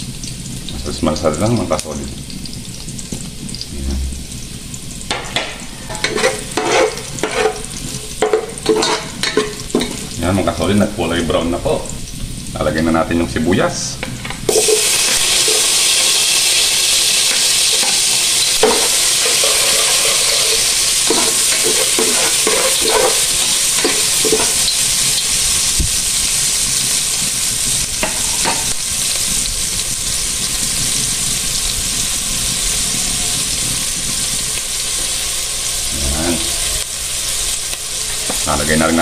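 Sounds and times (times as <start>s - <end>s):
onion sizzling in hot oil: 0.0s - 39.0s
spoon scraping pan: 5.1s - 10.2s, 14.0s - 25.3s, 28.0s - 28.8s.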